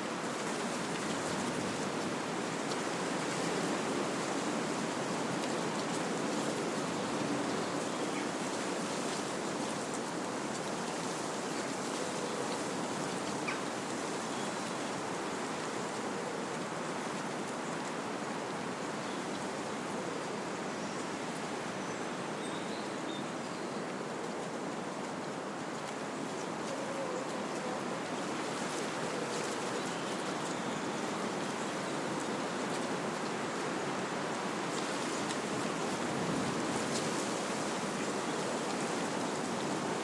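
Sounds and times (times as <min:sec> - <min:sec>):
wind rushing through trees: 0:16.8 - 0:40.0.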